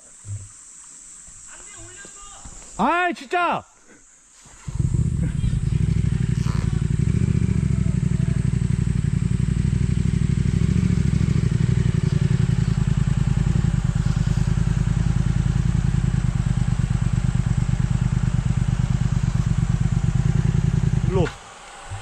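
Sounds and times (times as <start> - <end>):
motorcycle engine running: 4.6 - 22.0.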